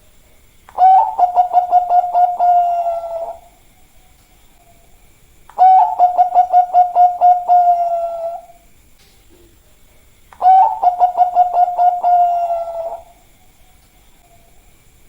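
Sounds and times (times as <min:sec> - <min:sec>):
dove cooing: 0:00.7 - 0:03.6, 0:05.6 - 0:08.6, 0:10.4 - 0:13.3.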